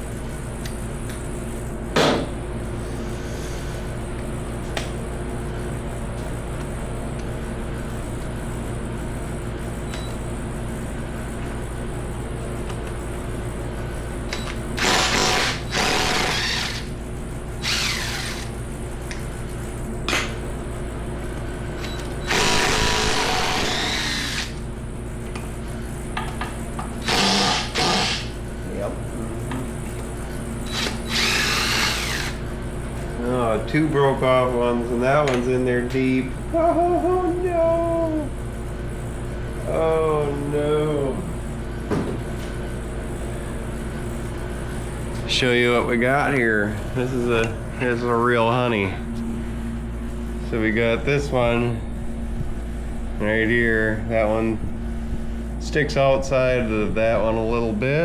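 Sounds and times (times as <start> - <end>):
steady low hum: 0.0 - 58.0
hand-held power tool running: 14.4 - 17.0, 17.6 - 18.6, 22.2 - 24.6, 27.0 - 28.4, 30.6 - 32.4.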